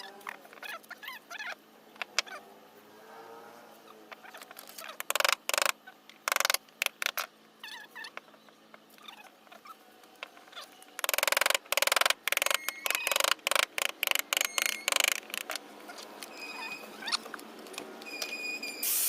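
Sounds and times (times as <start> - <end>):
faint squeaky gliding: 15.8 - 17.3.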